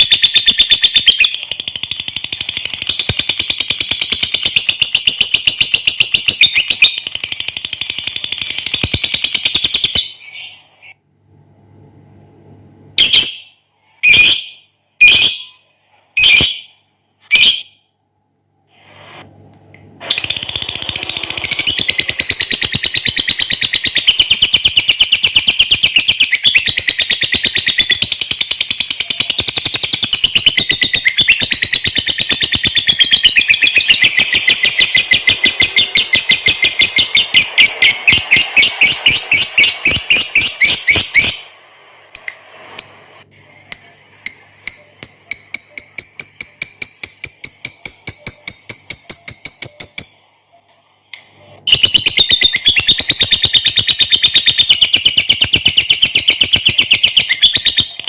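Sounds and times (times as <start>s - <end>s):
lovebird chattering: 20.1s - 41.5s.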